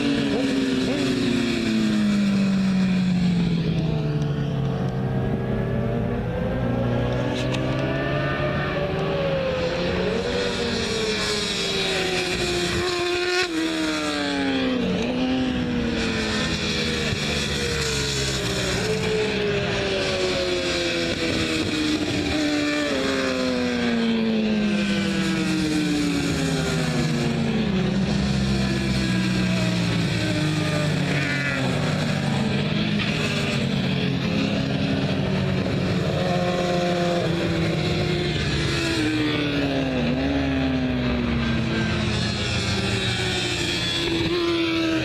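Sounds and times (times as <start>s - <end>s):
motorcycle engines revving: 0.0s - 45.0s.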